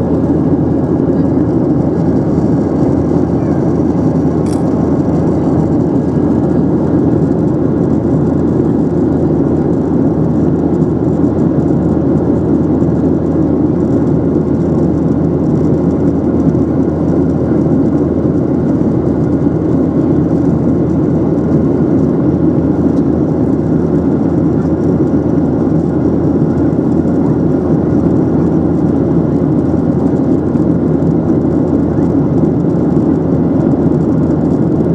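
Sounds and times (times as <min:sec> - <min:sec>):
airliner cabin engine drone: 0:00.0 - 0:34.9.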